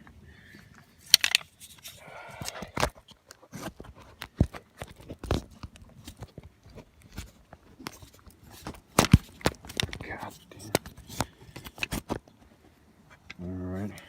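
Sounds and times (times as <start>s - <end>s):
clicks and knocks of metal parts: 0.7s - 3.4s.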